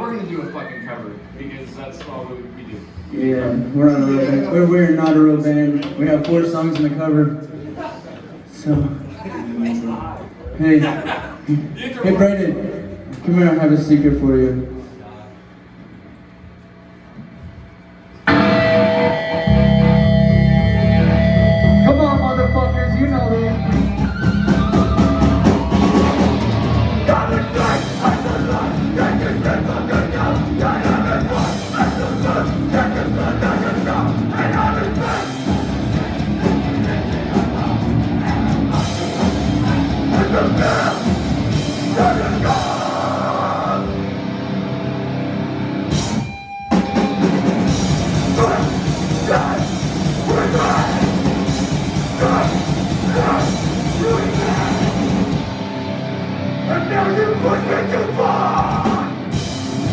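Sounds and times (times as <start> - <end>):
vocals: 0.0 - 14.8, 18.3 - 44.2, 47.7 - 59.9
punk band playing live: 18.2 - 59.9.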